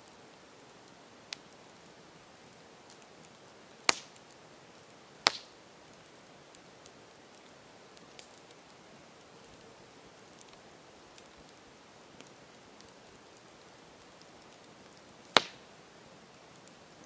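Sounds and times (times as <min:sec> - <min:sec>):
campfire hissing and crackling: 0:00.0 - 0:17.0
loud sharp pops: 0:03.9 - 0:04.1, 0:05.2 - 0:05.6, 0:15.3 - 0:15.6.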